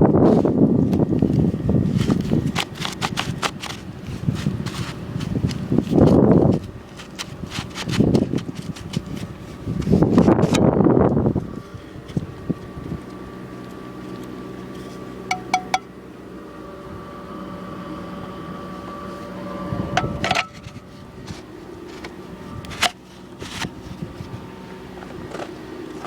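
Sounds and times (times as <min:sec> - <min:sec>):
steady motor hum: 0:00.0 - 0:26.0.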